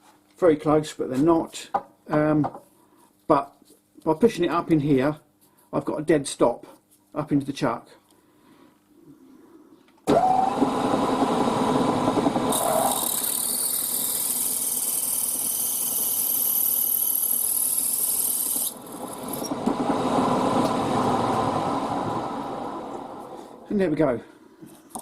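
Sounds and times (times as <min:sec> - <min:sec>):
milling machine spindle running: 0:10.1 - 0:15.2
drill bit cutting brass: 0:12.5 - 0:19.6.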